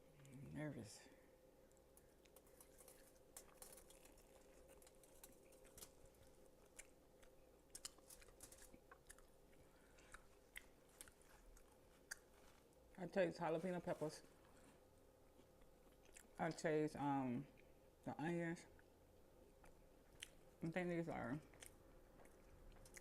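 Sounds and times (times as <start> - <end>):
faint steady hum: 0.0 - 23.0
chewing with wet mouth clicks: 1.7 - 12.6, 15.4 - 16.5, 19.6 - 20.5, 21.4 - 23.0.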